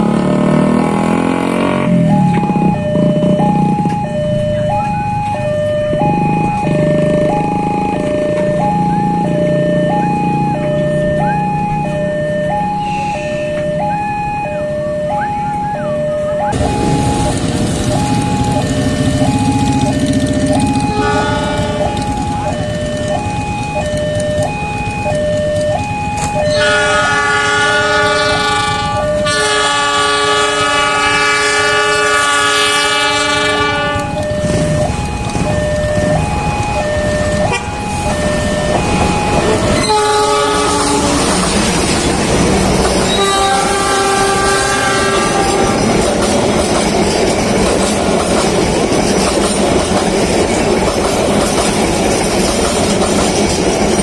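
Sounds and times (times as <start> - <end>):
level crossing alarm: 1.7 - 48.3
train rumble: 1.7 - 54.0
locomotive horn: 12.7 - 22.5, 26.4 - 46.2
wheels clattering over rails: 34.0 - 54.0.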